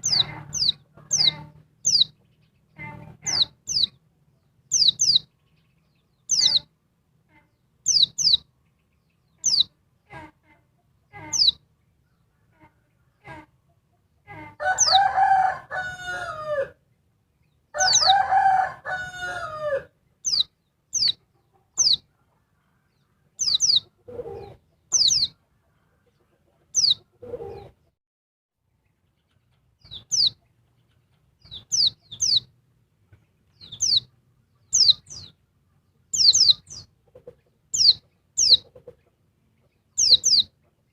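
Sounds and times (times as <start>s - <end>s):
rooster crowing: 14.6s - 16.8s, 17.8s - 19.9s.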